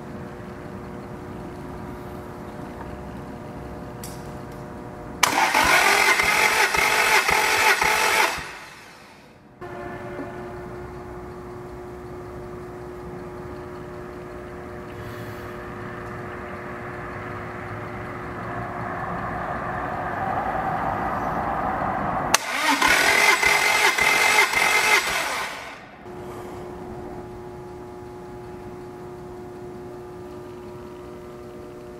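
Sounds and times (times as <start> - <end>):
steady hum: 0.0 - 31.9
engine cranking on starter: 5.2 - 9.3, 22.3 - 26.0.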